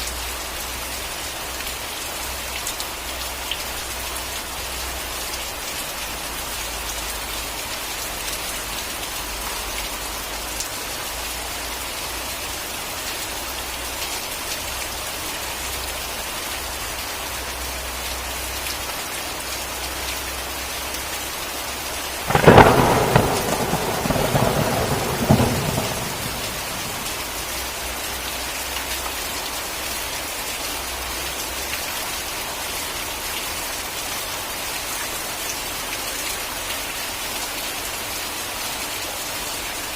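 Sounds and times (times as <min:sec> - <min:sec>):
heavy rain: 0:00.0 - 0:39.9
thunderclap: 0:22.3 - 0:27.6.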